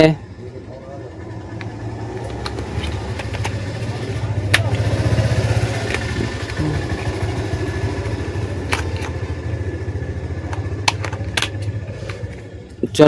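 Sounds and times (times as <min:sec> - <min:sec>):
engine idling: 0:00.0 - 0:13.0
plastic clicks: 0:01.6 - 0:04.9, 0:05.7 - 0:06.6, 0:08.7 - 0:09.2, 0:10.5 - 0:12.4.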